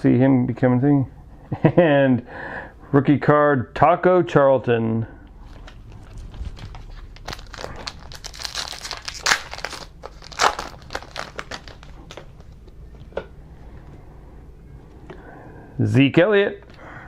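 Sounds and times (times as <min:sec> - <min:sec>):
plastic wrapper crinkling and tearing: 0:05.4 - 0:13.2.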